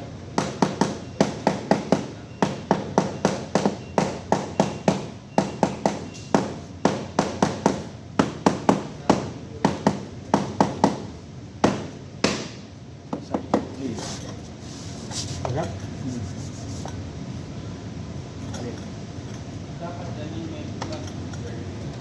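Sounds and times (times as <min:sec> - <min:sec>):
hammer blows ringing: 0:00.4 - 0:12.7.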